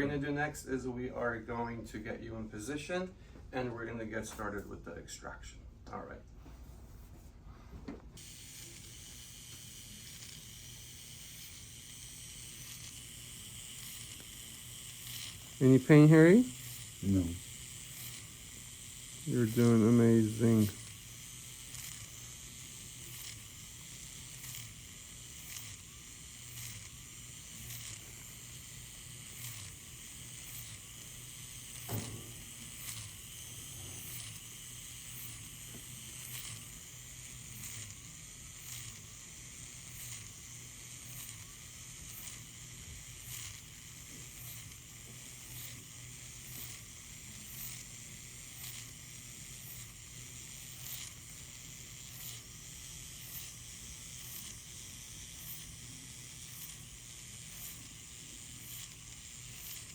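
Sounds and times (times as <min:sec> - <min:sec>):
small motor whirring: 0:08.2 - 0:59.9.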